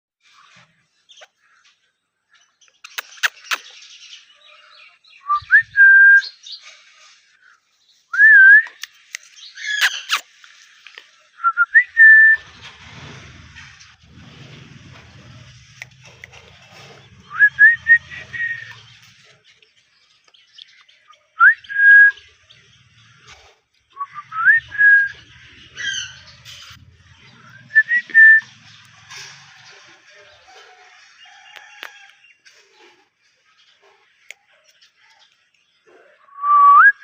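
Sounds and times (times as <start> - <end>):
parrot whistling: 24.0 - 25.2, 27.6 - 28.4.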